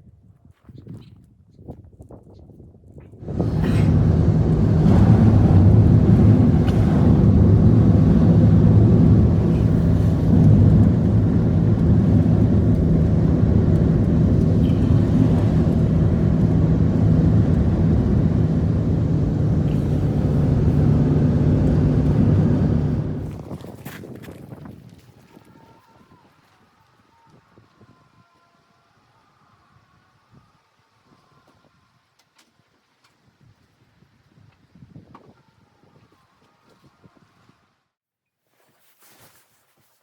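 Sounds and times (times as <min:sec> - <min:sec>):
motor engine droning: 0:03.2 - 0:23.4.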